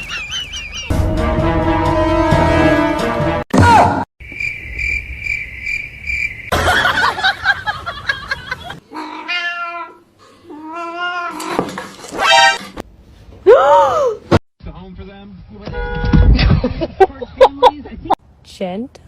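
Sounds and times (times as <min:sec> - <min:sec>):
cat meowing: 0:08.9 - 0:11.5.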